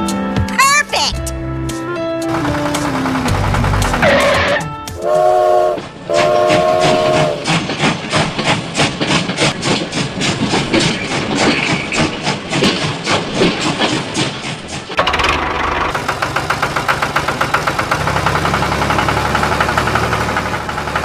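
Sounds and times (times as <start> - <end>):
train wheels clickety-clack: 2.3 - 21.0
train whistle blasts: 4.0 - 7.5.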